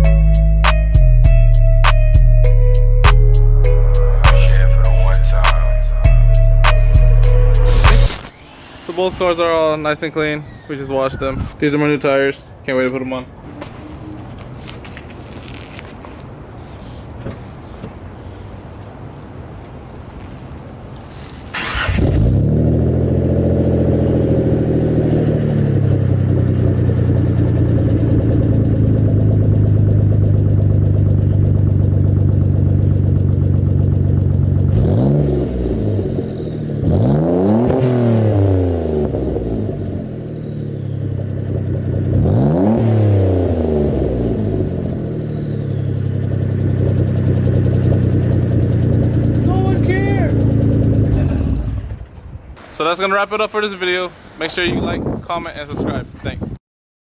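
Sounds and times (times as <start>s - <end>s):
car engine starting up: 21.1s - 52.2s
car engine idling and revving: 21.5s - 52.4s.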